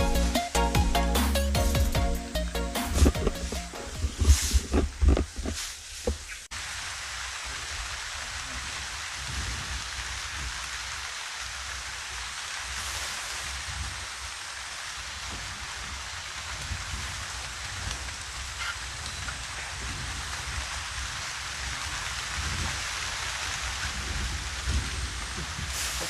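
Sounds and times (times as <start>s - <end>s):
background music: 0.0s - 4.1s
rain on forest canopy: 1.8s - 26.0s.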